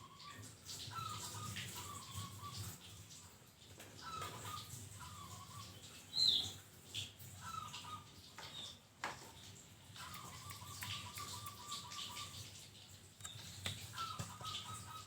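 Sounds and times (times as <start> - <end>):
dove cooing: 13.8 - 15.0.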